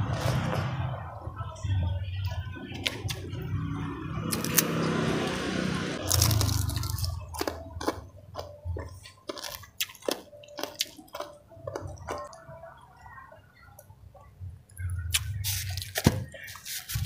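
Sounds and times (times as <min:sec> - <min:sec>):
person chewing: 0:04.3 - 0:05.3, 0:06.0 - 0:12.5, 0:14.9 - 0:17.0.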